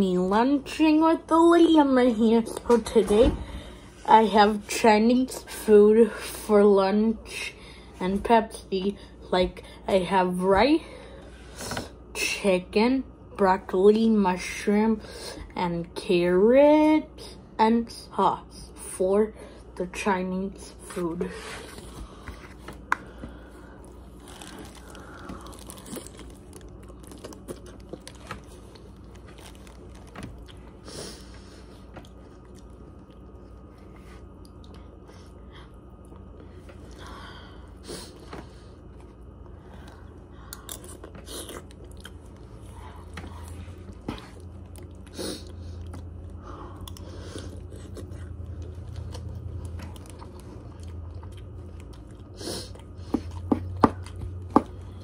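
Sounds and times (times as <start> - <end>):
low steady hum: 0.0 - 55.0
person chewing food: 21.6 - 37.1, 38.1 - 55.0.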